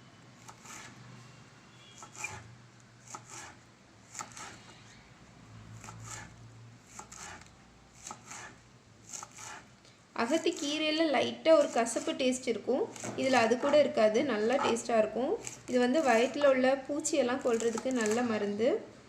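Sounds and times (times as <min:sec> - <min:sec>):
soft cutting sounds: 0:00.4 - 0:01.0, 0:02.0 - 0:04.7, 0:06.9 - 0:10.8.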